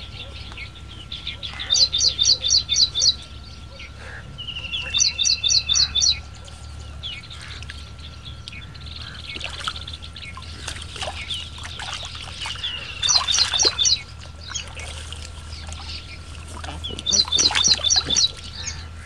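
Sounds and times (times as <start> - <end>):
bird calling sharp notes: 0.0 - 19.0
water splashing and sloshing: 6.4 - 19.0.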